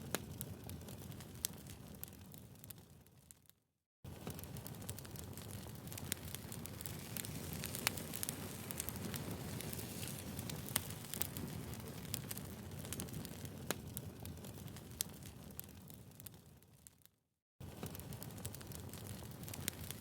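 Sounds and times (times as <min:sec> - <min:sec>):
firewood fire crackling: 0:00.0 - 0:20.0
sharp pops of burning wood: 0:04.2 - 0:16.4, 0:17.7 - 0:20.0.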